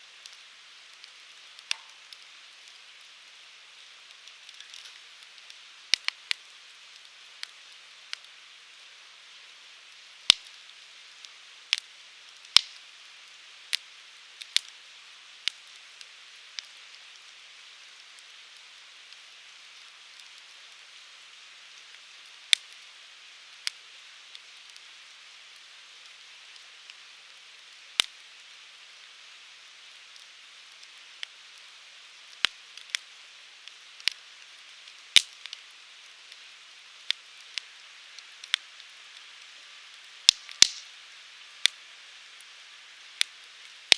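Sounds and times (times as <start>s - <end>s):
hiss of flames: 0.0s - 9.0s, 30.1s - 43.9s
firewood popping and snapping: 1.6s - 2.2s, 40.3s - 40.9s.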